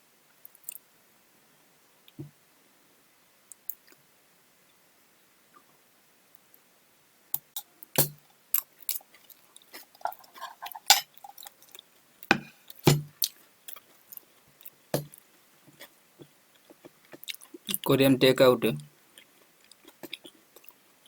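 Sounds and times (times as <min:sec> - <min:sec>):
mouth clicks chewing fruit: 0:16.2 - 0:17.9, 0:19.2 - 0:20.8.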